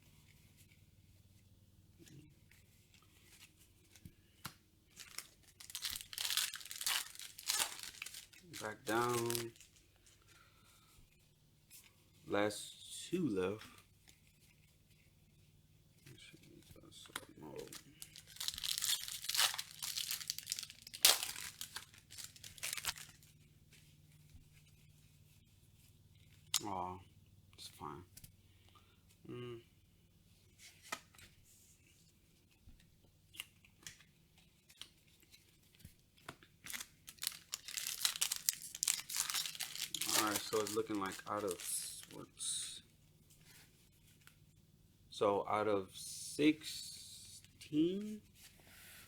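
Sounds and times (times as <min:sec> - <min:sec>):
foil wrapper tearing and crinkling: 0:04.9 - 0:09.8, 0:17.6 - 0:23.3, 0:36.6 - 0:42.2
sharp loud packaging rip: 0:18.3 - 0:23.0.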